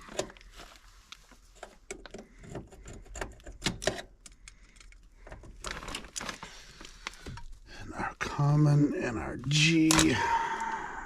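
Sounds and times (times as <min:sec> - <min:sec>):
connectors clicking onto terminals: 0:09.4 - 0:10.2.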